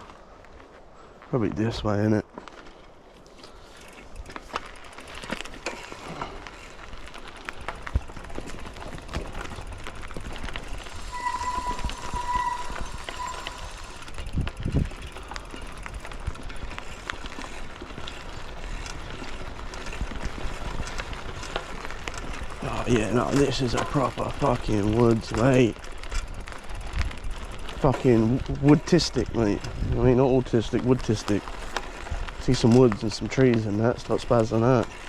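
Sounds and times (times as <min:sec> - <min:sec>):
bike clicks and rattles: 0:00.0 - 0:35.0
mountain bike tyre noise: 0:00.0 - 0:35.0
short high tone: 0:11.1 - 0:14.0.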